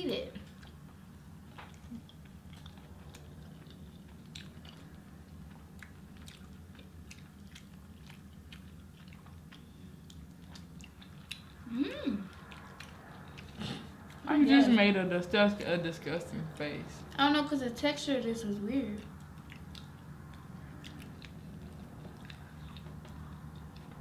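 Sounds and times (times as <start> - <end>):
steady low hum: 0.0 - 24.0
people chewing soft food: 0.4 - 14.8, 18.9 - 24.0
person humming: 11.7 - 12.3.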